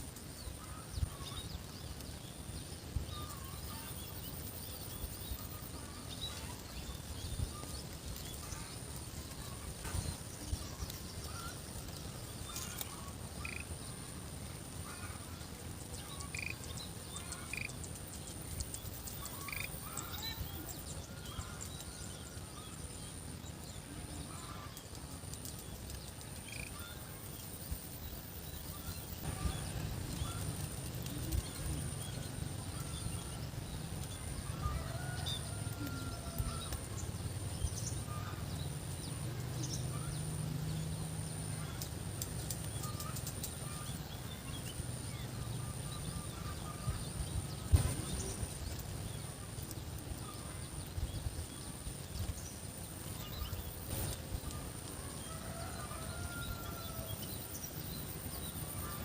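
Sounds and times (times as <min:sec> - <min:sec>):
small animals chirping: 0:12.5 - 0:13.7, 0:16.0 - 0:17.9, 0:18.6 - 0:21.6.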